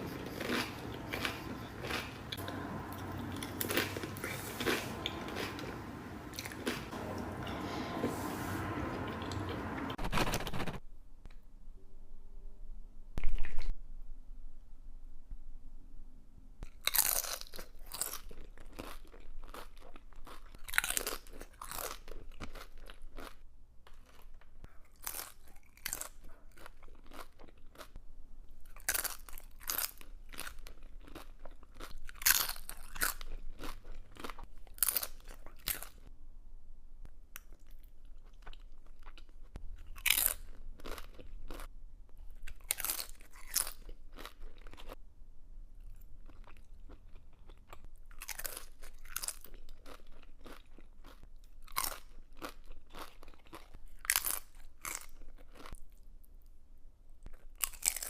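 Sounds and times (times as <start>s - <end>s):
crunching chips: 16.7s - 24.3s, 24.9s - 27.9s, 28.7s - 36.0s, 38.2s - 41.7s, 42.4s - 45.0s, 45.9s - 56.0s, 57.3s - 58.0s.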